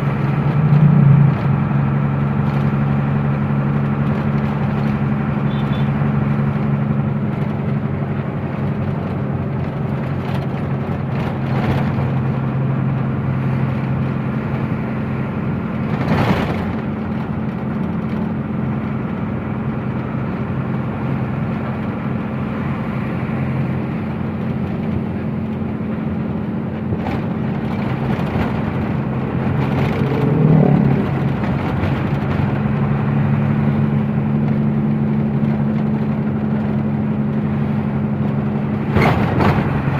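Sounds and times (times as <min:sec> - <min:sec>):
vehicle passing: 0:00.0 - 0:03.1, 0:28.4 - 0:34.4
road noise: 0:00.0 - 0:39.9
truck engine drone: 0:00.0 - 0:39.9.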